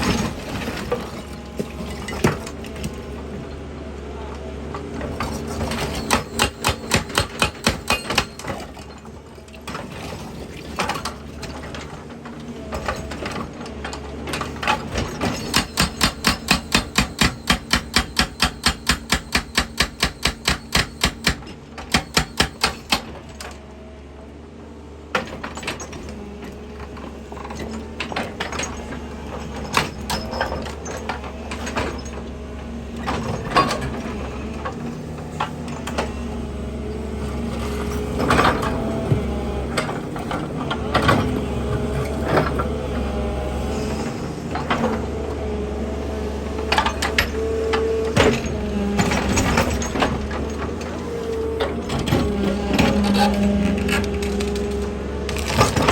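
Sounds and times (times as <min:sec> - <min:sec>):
hydraulic breaker hammering rock: 0:05.0 - 0:09.0, 0:14.2 - 0:23.5, 0:46.6 - 0:55.9
diesel engine droning: 0:30.6 - 0:55.9.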